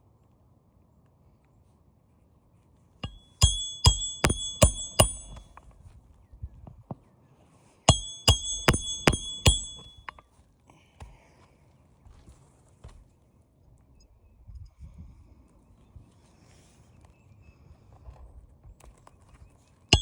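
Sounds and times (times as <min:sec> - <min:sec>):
hammer striking metal: 0:03.0 - 0:05.6, 0:07.9 - 0:10.2.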